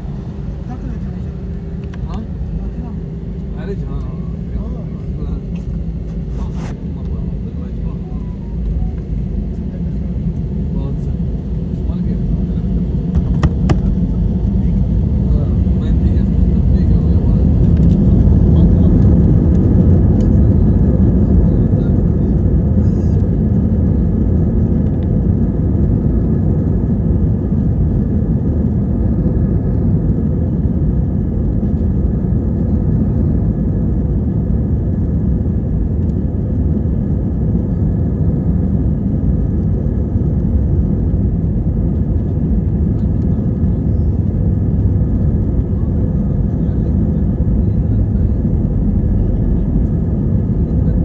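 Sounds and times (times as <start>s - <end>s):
faint steady whine: 0.0s - 23.6s
loud low engine rumble: 0.0s - 51.0s.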